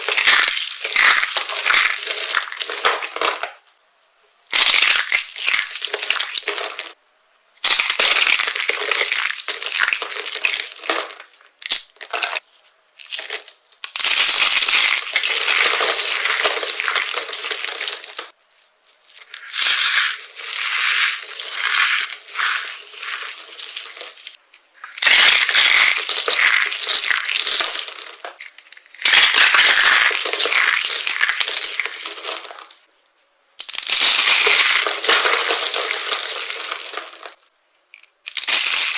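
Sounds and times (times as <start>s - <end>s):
dry soap crunching: 0.0s - 3.6s, 7.6s - 32.9s, 33.6s - 38.9s.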